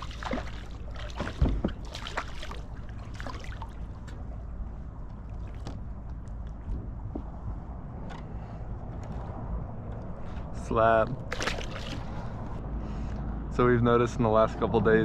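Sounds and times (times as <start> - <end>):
water lapping against kayak hull: 0.0 - 6.8, 11.2 - 12.6.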